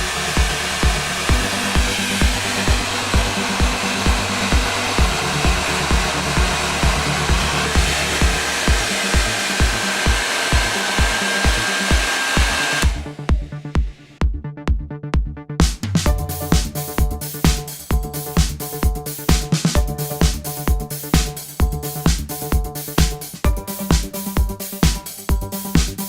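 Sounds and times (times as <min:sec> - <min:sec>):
hair dryer running: 0:00.0 - 0:13.3
electronic dance music: 0:00.0 - 0:26.0.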